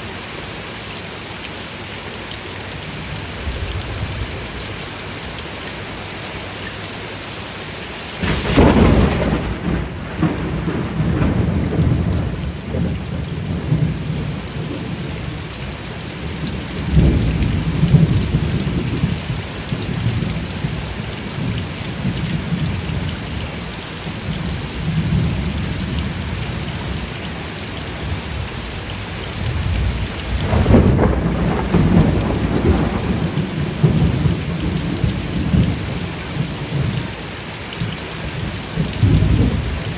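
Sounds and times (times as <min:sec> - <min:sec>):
steady rain: 0:00.0 - 0:39.9
thunderclap and rumbling: 0:08.2 - 0:15.3, 0:16.3 - 0:20.8, 0:29.4 - 0:37.0, 0:38.4 - 0:39.9.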